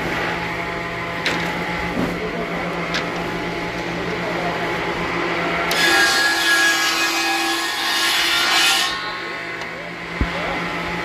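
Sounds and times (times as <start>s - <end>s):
power saw cutting wood: 5.4s - 9.8s.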